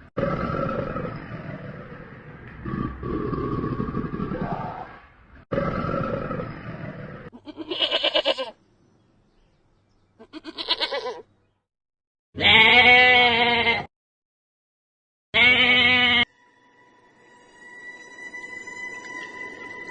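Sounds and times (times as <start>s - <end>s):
rough low animal sound: 0.0s - 7.4s
animal bleating: 7.3s - 8.6s, 10.2s - 11.3s, 12.4s - 13.9s, 15.4s - 16.3s.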